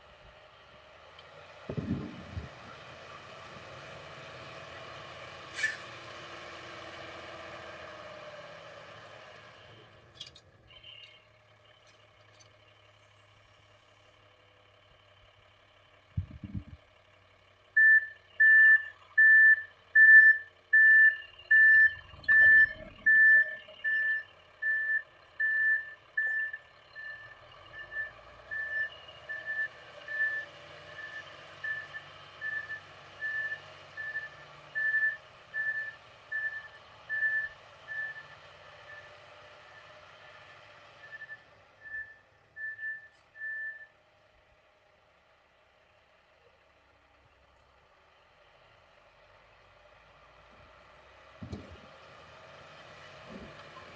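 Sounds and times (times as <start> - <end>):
reversing alarm beeping: 17.8 - 39.1
short thump: 51.4 - 51.9.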